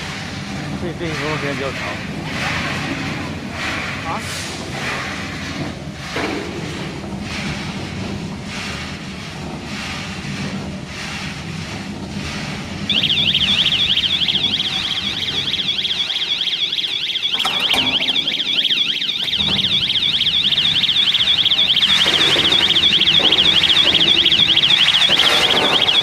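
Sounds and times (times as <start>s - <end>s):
roasting machine humming: 0.0s - 26.0s
warbling electronic alarm: 12.9s - 26.0s.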